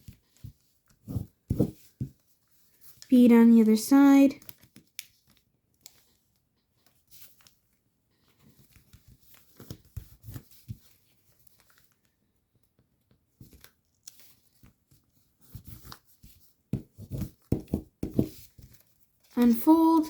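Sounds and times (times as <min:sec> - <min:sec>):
paper rustling and crinkling: 0:04.4 - 0:12.1, 0:13.4 - 0:20.0.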